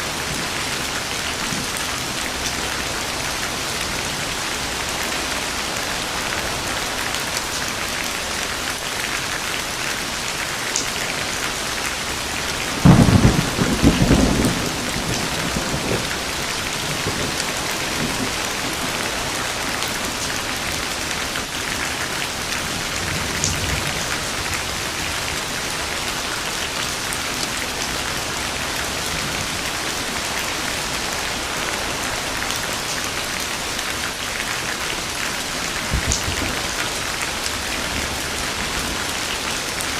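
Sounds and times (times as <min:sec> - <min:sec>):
heavy rain: 0:00.0 - 0:39.9
thunder: 0:12.8 - 0:19.0, 0:35.8 - 0:36.8.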